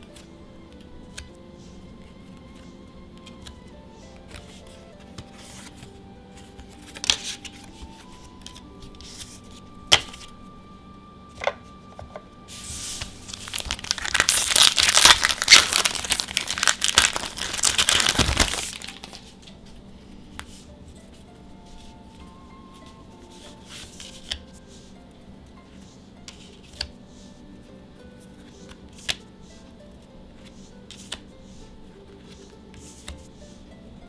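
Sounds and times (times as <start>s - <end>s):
faint background music: 0.0s - 34.0s
foil wrapper tearing and crinkling: 13.2s - 19.2s.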